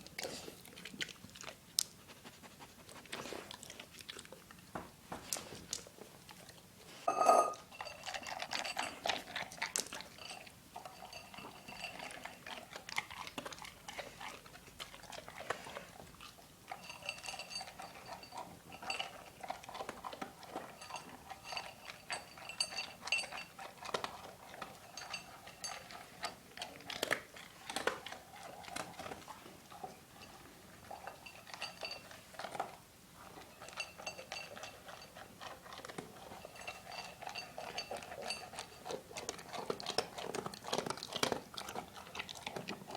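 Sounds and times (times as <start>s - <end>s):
dog chewing and crunching: 0.0s - 42.9s
clinks against bowl: 7.1s - 12.5s, 16.7s - 26.4s, 30.2s - 32.7s, 33.5s - 39.0s.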